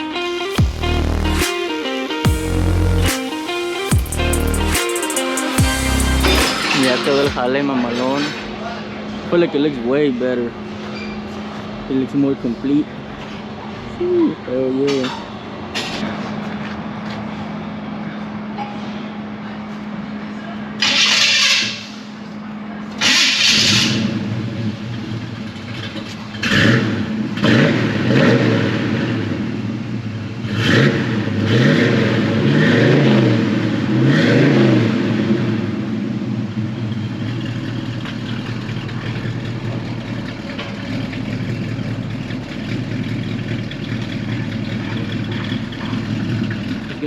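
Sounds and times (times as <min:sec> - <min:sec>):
raspy exhaust: 0:00.0 - 0:01.5, 0:02.3 - 0:47.0
car engine revving and idling: 0:00.0 - 0:01.6, 0:02.2 - 0:07.6, 0:19.2 - 0:47.0.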